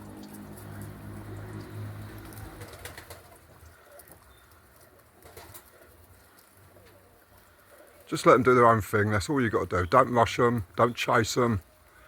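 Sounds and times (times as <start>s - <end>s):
pigeons cooing softly: 0.5s - 8.4s.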